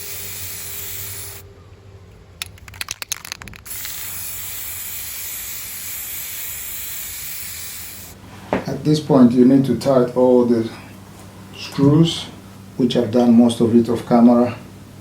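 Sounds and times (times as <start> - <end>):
steady hiss: 0.0 - 1.4, 3.6 - 8.4
sharp clicks and knocks: 2.4 - 3.7.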